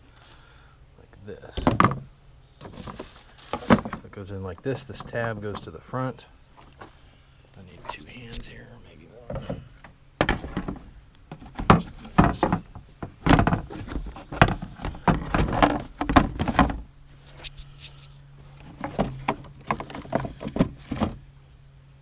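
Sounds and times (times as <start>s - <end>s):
plastic knocks clicks and scrapes: 1.6s - 4.1s, 9.3s - 16.8s, 18.6s - 21.2s.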